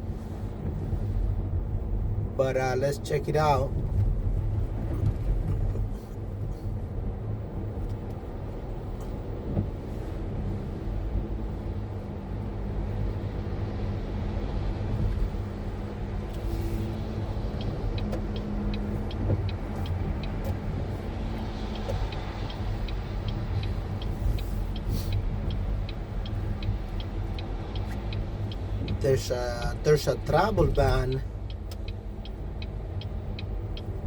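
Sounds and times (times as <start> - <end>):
car engine and road rumble: 0.0 - 34.0
light ticking: 16.3 - 34.0.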